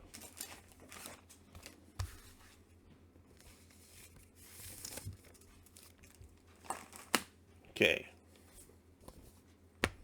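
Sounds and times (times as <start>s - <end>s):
rustling paper and comic books: 0.0s - 7.4s.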